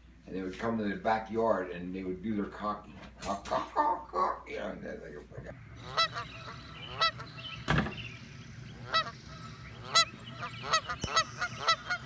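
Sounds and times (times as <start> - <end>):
honking bird calls: 5.5 - 12.0
thump: 7.7 - 8.0.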